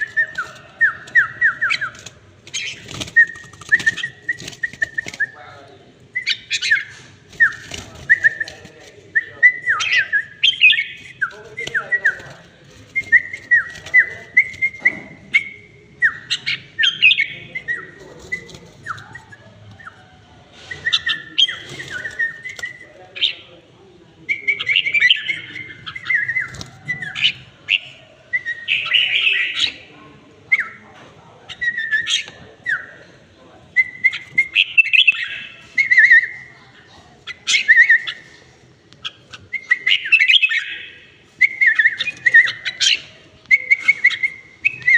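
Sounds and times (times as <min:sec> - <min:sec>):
bird singing whistled phrases: 0:06.1 - 0:08.5, 0:09.2 - 0:12.2, 0:33.8 - 0:36.5, 0:39.5 - 0:44.9.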